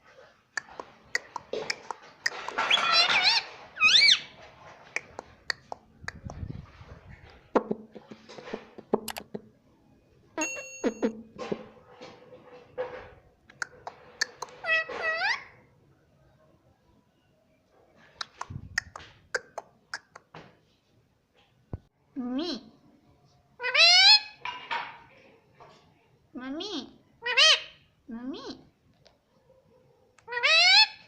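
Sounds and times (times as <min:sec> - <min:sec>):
parrot chattering and calling: 0:00.6 - 0:06.3, 0:13.5 - 0:15.6, 0:18.2 - 0:20.3, 0:23.6 - 0:24.4, 0:26.6 - 0:27.8, 0:30.2 - 0:31.0
parrot squawks: 0:01.2 - 0:04.3, 0:14.2 - 0:15.6, 0:23.6 - 0:24.4, 0:27.2 - 0:27.8, 0:30.2 - 0:31.0.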